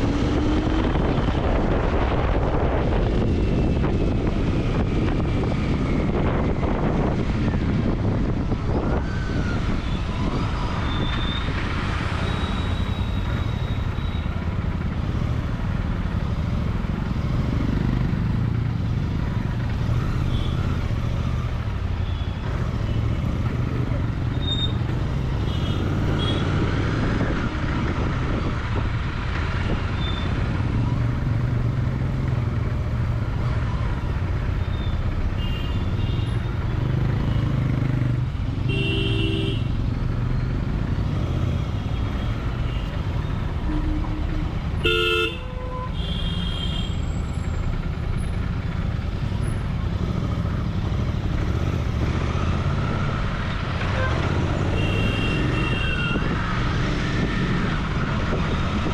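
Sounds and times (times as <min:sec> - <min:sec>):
vehicle horns tooting: 0:38.6 - 0:39.7, 0:43.6 - 0:47.1, 0:53.9 - 0:56.4.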